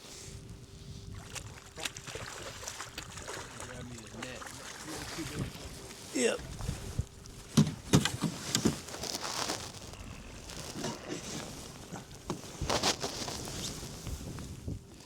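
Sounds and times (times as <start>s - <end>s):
knocks and thumps in a boat: 1.2s - 9.4s.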